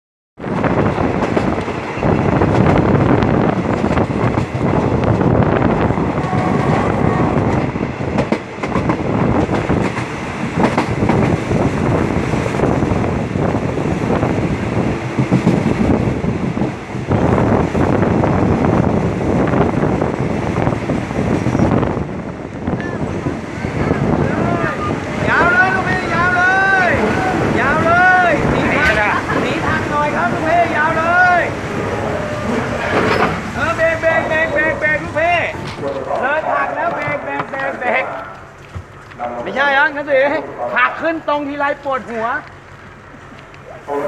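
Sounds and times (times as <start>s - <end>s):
train wheels rumbling on rails: 0.4s - 38.9s
wheels clattering over rail joints: 26.6s - 39.4s.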